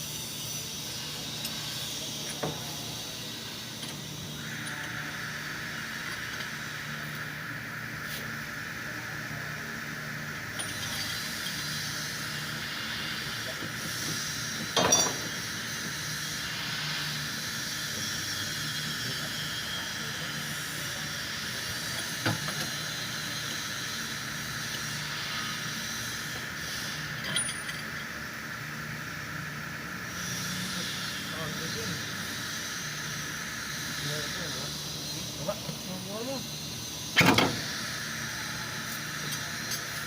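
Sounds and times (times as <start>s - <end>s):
mechanical hum and hiss: 0.0s - 40.0s
metallic clink: 10.6s - 11.6s, 14.8s - 15.2s, 27.2s - 28.0s.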